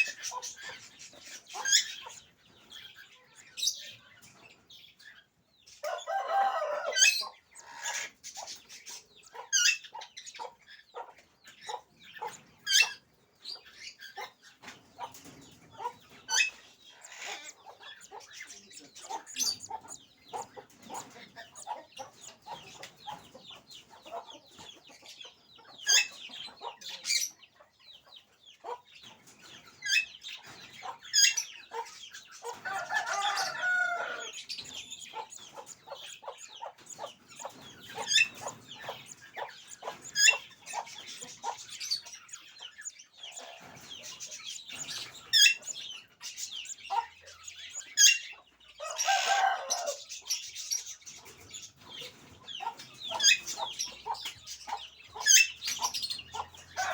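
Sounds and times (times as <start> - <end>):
birds squawking: 0.0 - 4.4, 5.2 - 27.6, 28.6 - 56.9.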